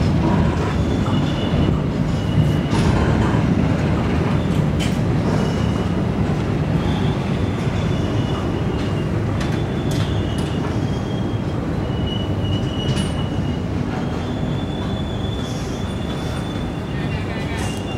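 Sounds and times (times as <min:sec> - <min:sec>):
train wheels rumbling on rails: 0:00.0 - 0:17.9
high brake squeal: 0:00.7 - 0:02.9, 0:06.8 - 0:17.9.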